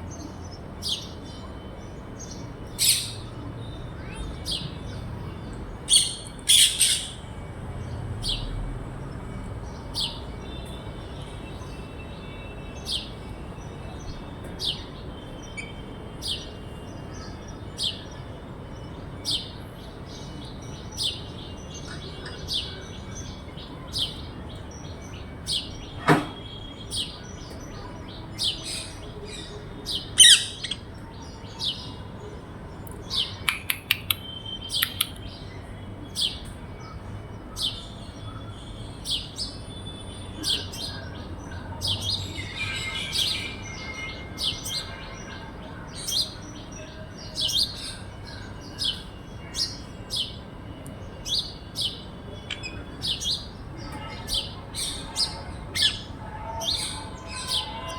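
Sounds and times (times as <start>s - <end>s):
parrot chirping: 5.9s - 7.2s, 30.2s - 30.8s, 33.4s - 35.2s.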